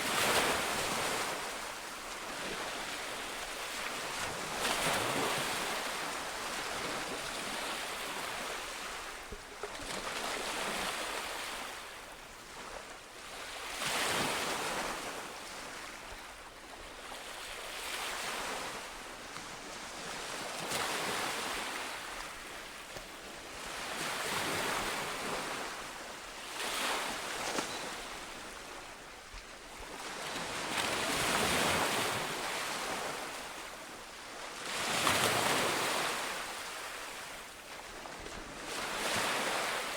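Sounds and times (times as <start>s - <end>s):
sea waves breaking on shore: 17.0s - 39.9s.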